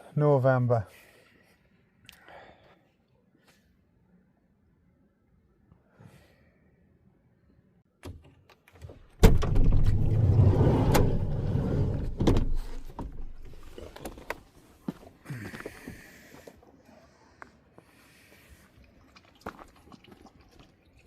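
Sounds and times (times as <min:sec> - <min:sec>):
sliding door clunk: 0:09.2 - 0:13.4.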